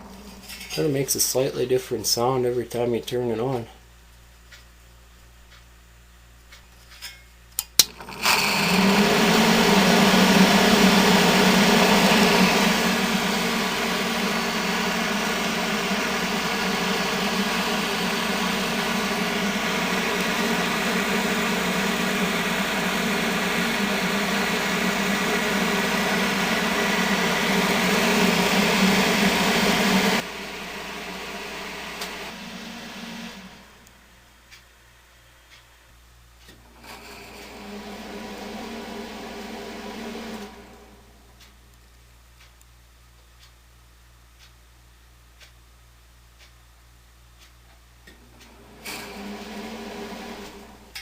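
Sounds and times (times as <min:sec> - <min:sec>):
exhaust fan rattling and humming: 0:08.0 - 0:34.5, 0:36.6 - 0:41.4, 0:48.2 - 0:51.0.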